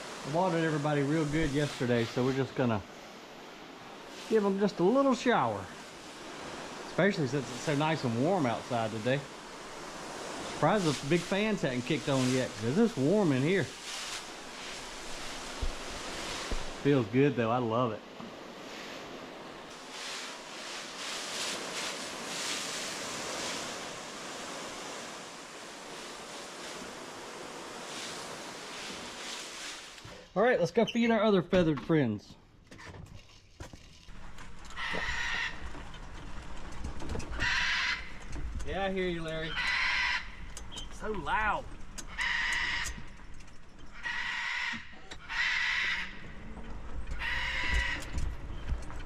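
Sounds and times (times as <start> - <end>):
hose spraying water mist: 0.0 - 30.3
parrot squawking: 39.5 - 40.4, 42.1 - 43.0, 43.9 - 46.2.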